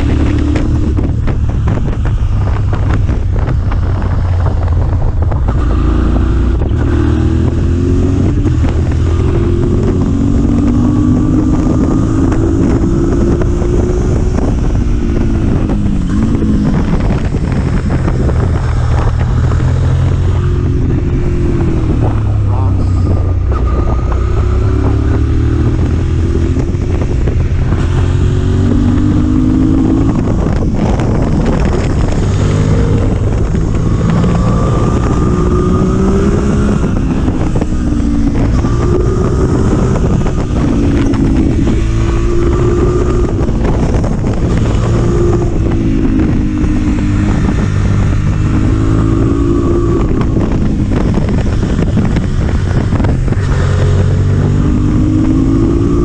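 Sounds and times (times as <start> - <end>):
motorcycle engine revving: 0.0 - 56.0
wind on microphone: 0.0 - 56.0.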